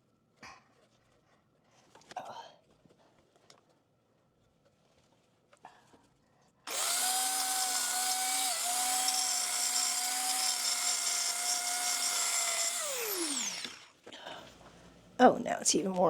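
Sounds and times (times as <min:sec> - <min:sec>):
small power tool whining: 0:06.7 - 0:14.1.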